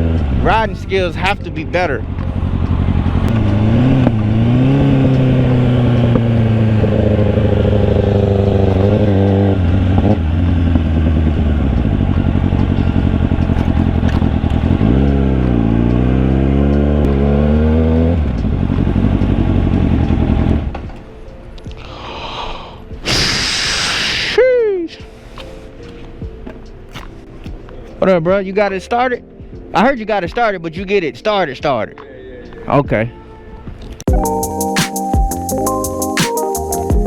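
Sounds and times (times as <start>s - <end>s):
motorcycle engine revving: 0.0s - 1.1s, 1.9s - 21.1s.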